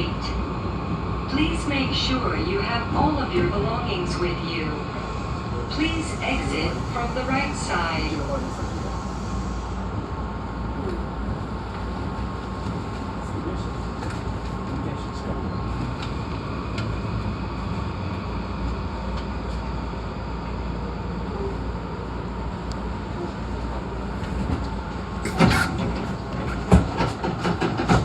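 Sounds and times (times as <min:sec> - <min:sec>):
train running rumble: 0:00.0 - 0:28.0
train clattering and hiss: 0:05.8 - 0:10.2, 0:23.8 - 0:28.0.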